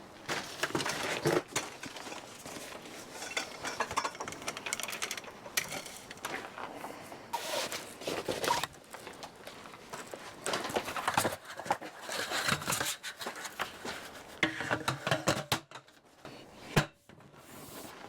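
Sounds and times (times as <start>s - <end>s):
light clattering and knocking: 0.6s - 6.6s.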